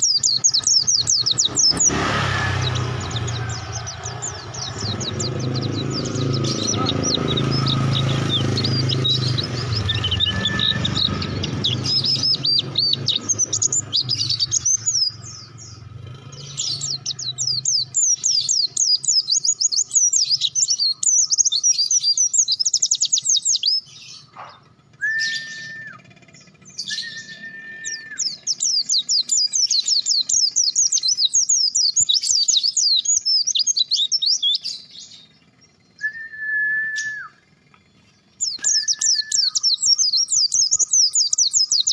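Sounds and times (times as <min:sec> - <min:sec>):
songbird twittering: 0:00.0 - 0:41.9
low whistled notes: 0:05.8 - 0:13.1, 0:25.0 - 0:26.1, 0:26.9 - 0:28.2.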